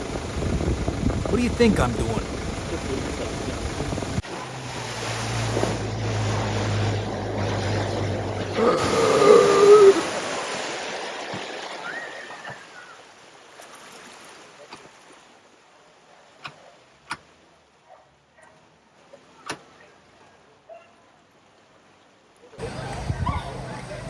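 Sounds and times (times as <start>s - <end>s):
water splashing and rushing: 2.0s - 15.9s.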